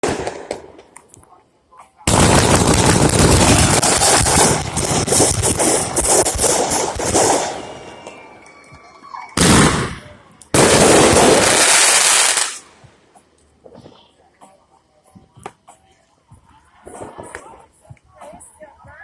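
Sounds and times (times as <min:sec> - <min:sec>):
fireworks crackling bangs: 0:00.0 - 0:01.1, 0:02.1 - 0:12.9
fireworks hissing rush: 0:02.1 - 0:08.3, 0:09.4 - 0:12.8.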